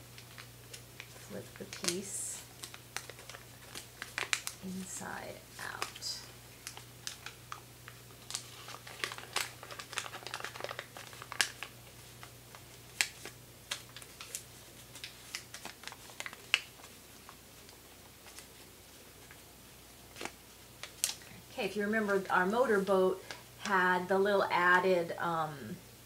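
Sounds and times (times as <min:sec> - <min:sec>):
paper crinkling and crackling: 0:00.0 - 0:23.9
paper snap: 0:00.2 - 0:02.0.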